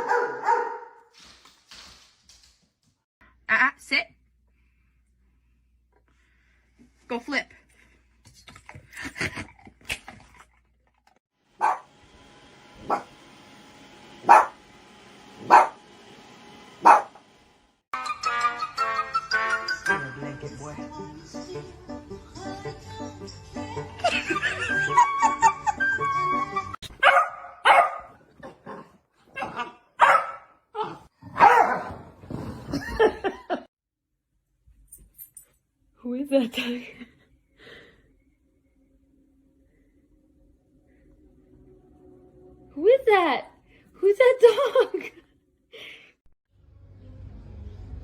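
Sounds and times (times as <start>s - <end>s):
dog barking: 0.0s - 1.0s, 11.6s - 11.9s, 12.8s - 13.1s, 14.2s - 14.6s, 15.4s - 15.8s, 16.8s - 17.2s, 26.9s - 32.1s.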